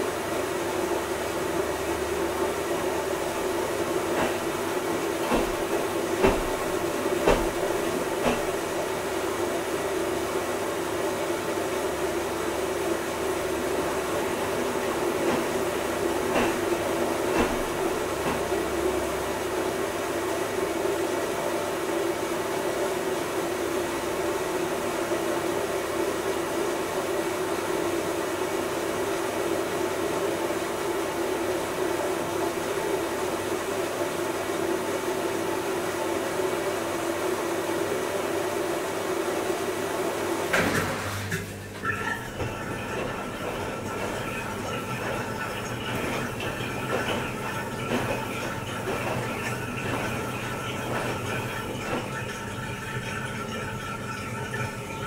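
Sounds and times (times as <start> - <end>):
washing machine motor hum: 0.0 - 55.0
knocks from turning drum: 4.1 - 4.5, 5.2 - 8.6, 16.3 - 18.5.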